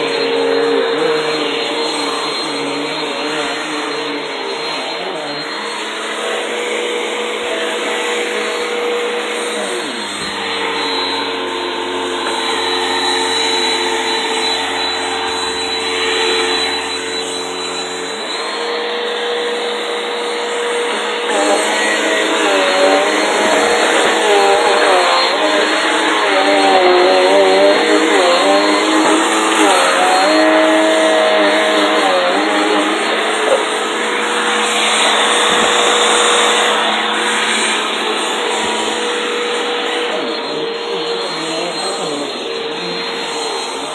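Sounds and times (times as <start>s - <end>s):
vacuum cleaner motor running: 0.0s - 43.9s.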